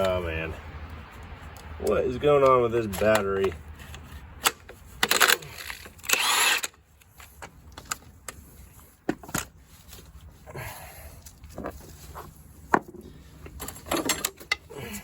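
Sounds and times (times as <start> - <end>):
scraping rustling noises: 0.0 - 6.2, 6.8 - 15.0
tools clicking and knocking: 12.7 - 14.7.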